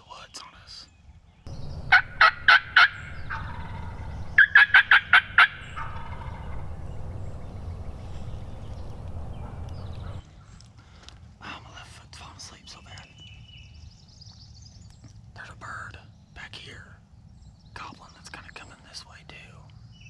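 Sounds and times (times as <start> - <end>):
low rumble: 1.5 - 10.2
turkey gobbling: 1.5 - 10.2.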